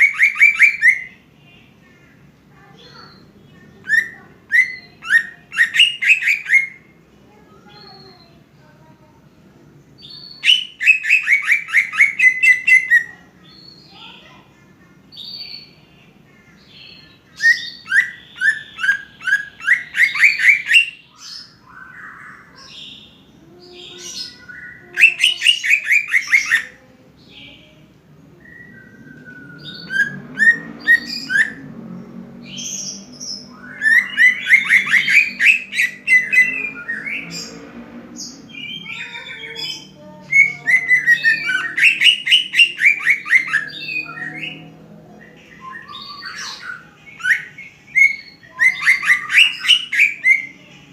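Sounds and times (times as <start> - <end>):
bird singing sharp repeated notes: 0.0 - 1.3, 2.7 - 6.9, 10.0 - 14.4, 16.7 - 23.3, 32.5 - 50.9.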